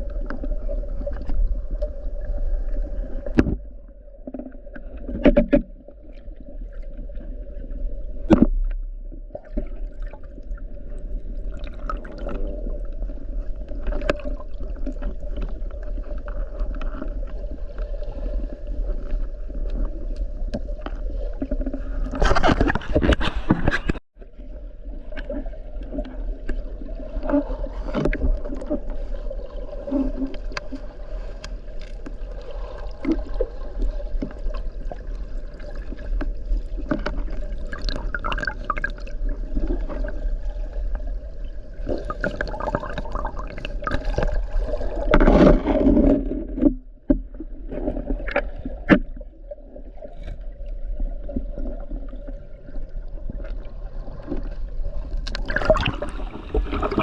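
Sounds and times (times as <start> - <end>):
water sloshing and gurgling: 0.0 - 57.0
knocks and splashes: 55.2 - 57.0.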